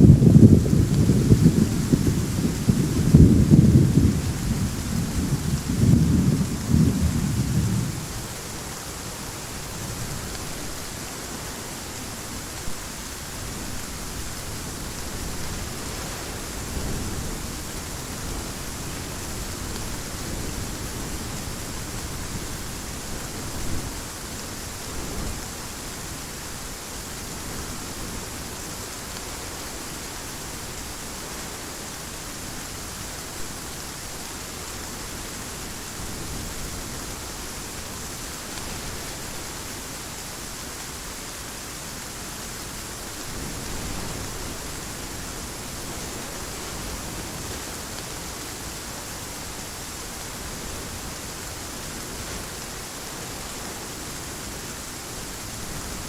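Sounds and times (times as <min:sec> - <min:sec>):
thunder rumbling: 0:00.0 - 0:08.5
heavy rain: 0:00.0 - 0:56.0.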